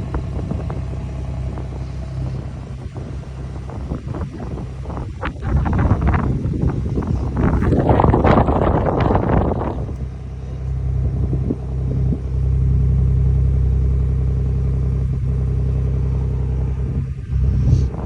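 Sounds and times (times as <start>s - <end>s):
wind noise: 0.0s - 12.4s, 16.8s - 18.0s
car engine idling: 0.0s - 18.0s.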